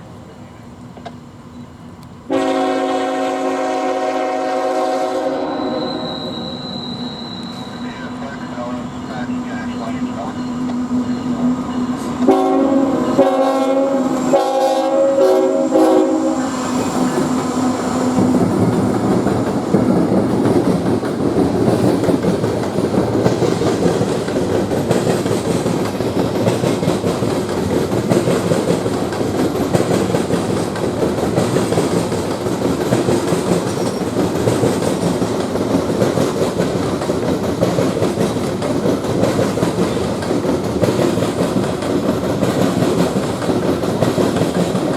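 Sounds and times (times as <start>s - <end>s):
train rumbling past: 0.0s - 44.9s
locomotive air horn blasts: 2.3s - 7.8s, 12.0s - 18.4s
wheel clatter on rails: 18.2s - 44.9s.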